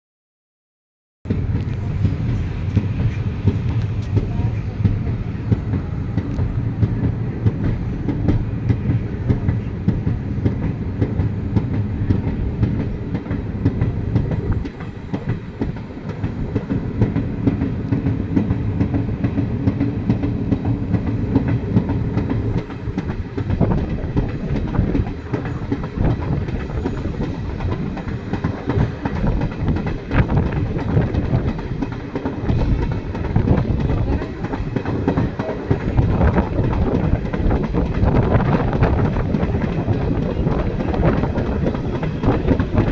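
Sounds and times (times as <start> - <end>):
train rumbling on track: 1.2 - 42.9.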